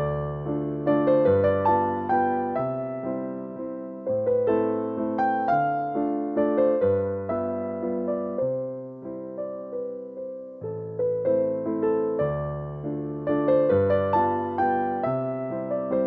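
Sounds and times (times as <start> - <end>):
electric piano melody: 0.0 - 16.0.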